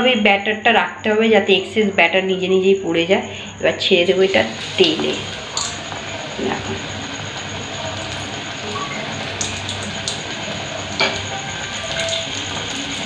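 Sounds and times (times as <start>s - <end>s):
aubergine slice sizzling in hot oil: 3.8s - 13.0s.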